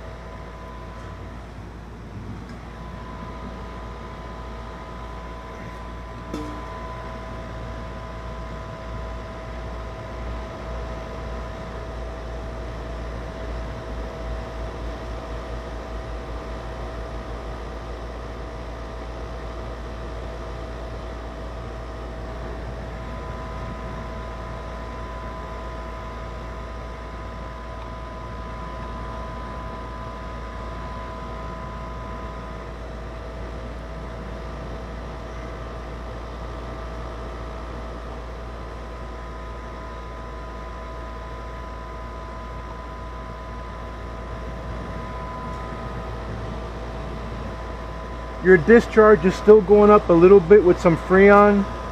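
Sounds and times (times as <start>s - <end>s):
steady whining tones: 0.0s - 17.1s, 21.4s - 51.9s
air conditioner unit humming: 0.0s - 51.9s.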